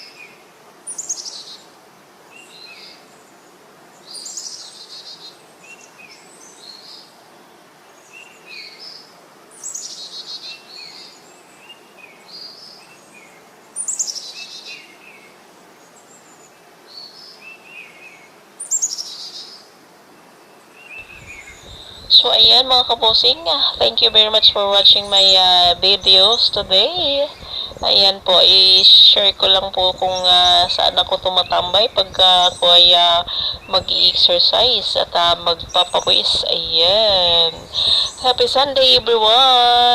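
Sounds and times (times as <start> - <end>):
downward-sweeping birdsong: 15.8 - 39.9
soft bird chirps: 20.4 - 38.9.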